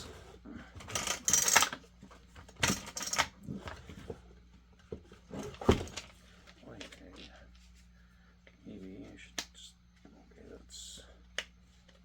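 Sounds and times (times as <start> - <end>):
metal parts clinking and rattling: 0.9 - 1.8, 2.6 - 3.3.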